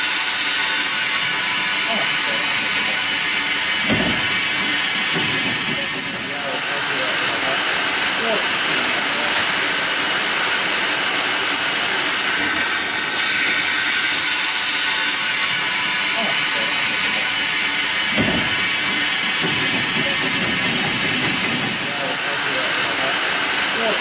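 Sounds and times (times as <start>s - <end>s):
steam venting hiss: 0.0s - 24.0s
short low thud: 3.8s - 6.4s.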